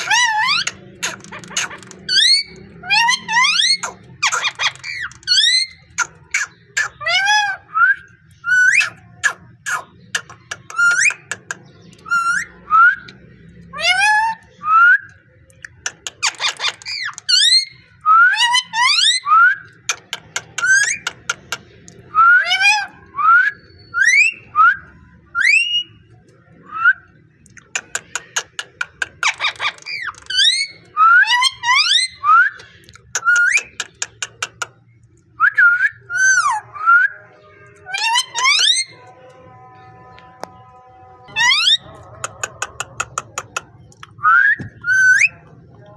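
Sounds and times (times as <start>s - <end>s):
harsh raspy parrot calls: 0.0s - 7.7s, 27.6s - 32.4s, 37.8s - 39.0s, 41.3s - 44.0s.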